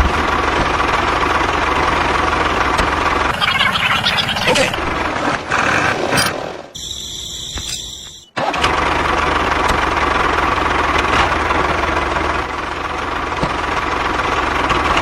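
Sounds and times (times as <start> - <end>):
small engine running: 0.0 - 15.0
faint high whine: 6.8 - 8.3.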